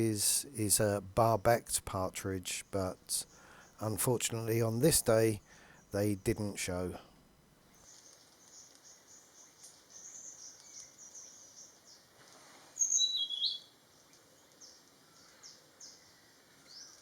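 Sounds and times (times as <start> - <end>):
birds chirping: 0.0 - 7.0, 12.8 - 17.0.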